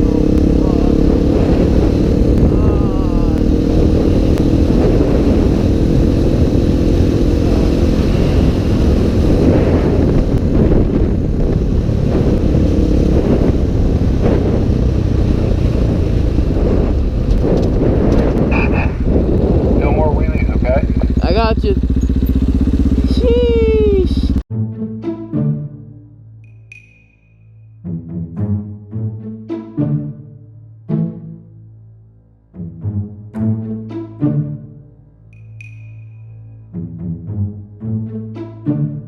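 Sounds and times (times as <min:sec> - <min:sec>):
motorcycle engine running: 0:00.0 - 0:24.4
wind noise on microphone: 0:00.0 - 0:24.4.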